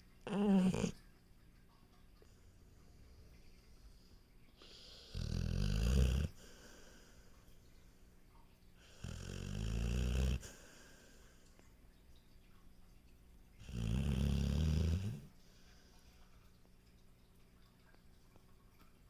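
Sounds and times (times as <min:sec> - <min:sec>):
dog snoring: 0:00.3 - 0:01.0, 0:04.7 - 0:06.6, 0:08.9 - 0:10.6, 0:13.6 - 0:15.3.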